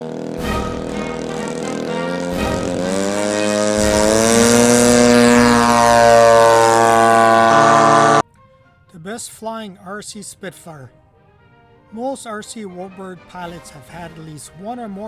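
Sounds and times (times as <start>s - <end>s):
propeller aircraft engine running: 0.0s - 8.2s.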